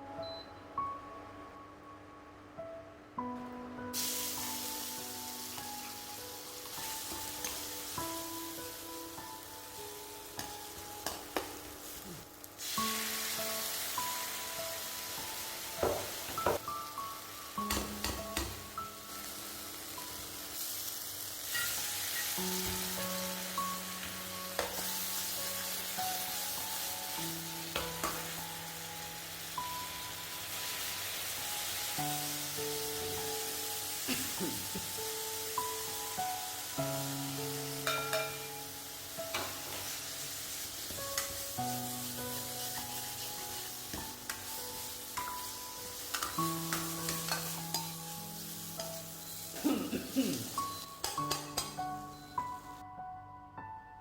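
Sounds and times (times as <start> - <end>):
soft background music: 0.0 - 54.0
food sizzling in a hot pan: 3.9 - 52.8
utensil clacking against pan: 51.0 - 51.8.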